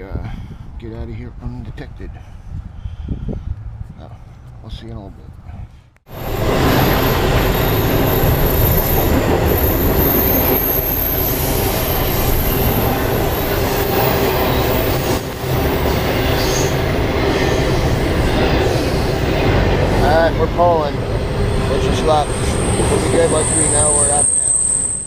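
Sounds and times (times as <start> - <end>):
freight train rumble: 5.4 - 25.0
high wheel squeal: 6.1 - 25.0.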